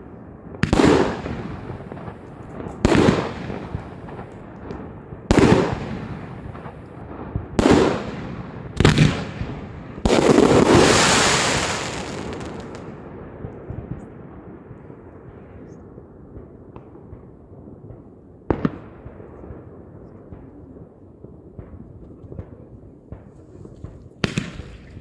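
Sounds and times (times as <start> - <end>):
firework bursts: 7.6 - 13.0.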